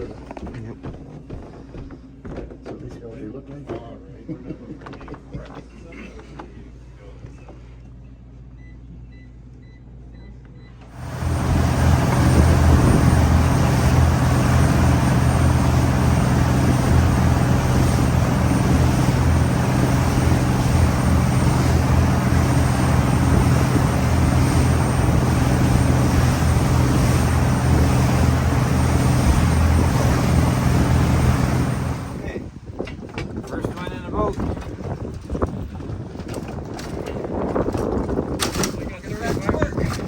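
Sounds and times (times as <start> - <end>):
loud wash of noise: 11.0 - 32.4
outboard motor running: 11.0 - 32.4.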